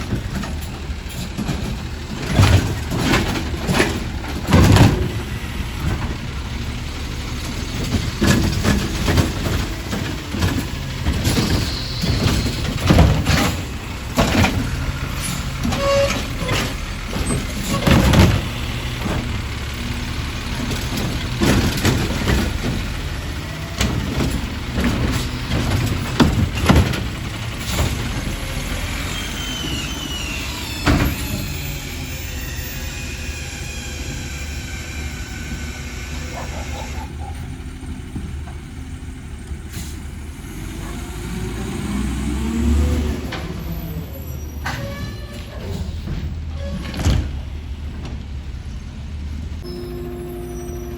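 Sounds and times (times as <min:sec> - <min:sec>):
metal clanks and knocks: 0:00.0 - 0:06.7, 0:07.3 - 0:19.5, 0:20.5 - 0:28.8
garbage truck engine running: 0:00.0 - 0:50.9
short high squeals: 0:11.4 - 0:12.6, 0:15.3 - 0:17.4, 0:29.1 - 0:37.2, 0:49.6 - 0:50.9.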